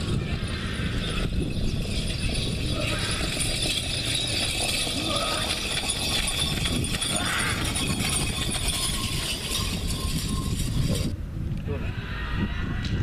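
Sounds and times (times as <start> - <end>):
indistinct voices: 2.0 - 8.2.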